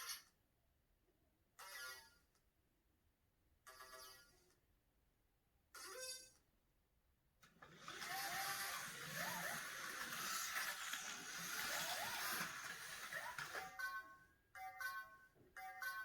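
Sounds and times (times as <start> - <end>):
toy train rushing on track: 7.5 - 13.9.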